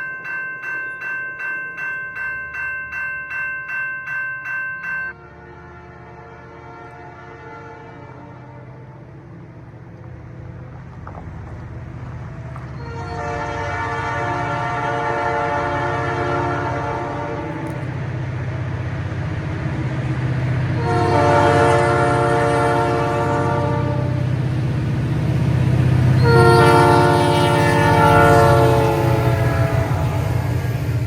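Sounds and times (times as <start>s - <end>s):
locomotive air horn blasts: 5.2s - 9.0s, 12.8s - 17.8s, 20.8s - 24.3s, 26.2s - 30.7s.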